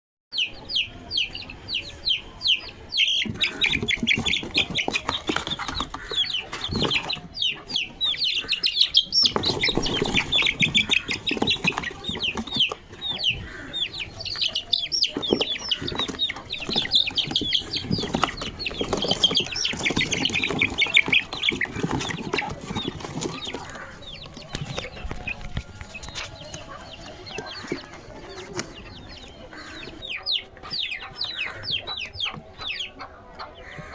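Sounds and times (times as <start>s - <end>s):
chicks peeping: 0.3s - 33.9s
rustling and scuffling: 3.2s - 30.0s.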